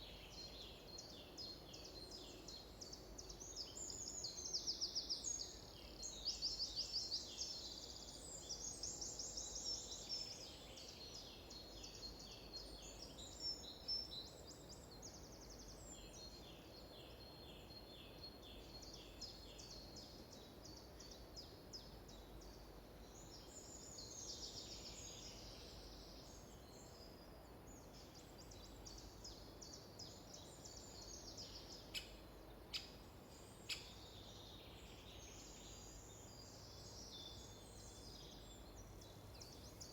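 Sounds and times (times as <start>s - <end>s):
faint steady background hiss: 0.0s - 39.9s
songbirds singing: 0.0s - 39.9s.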